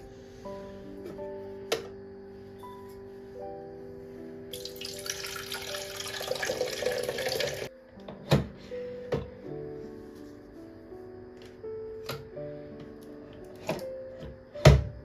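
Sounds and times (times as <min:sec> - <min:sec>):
soft background music: 0:00.0 - 0:15.0
water tap running: 0:04.5 - 0:07.7.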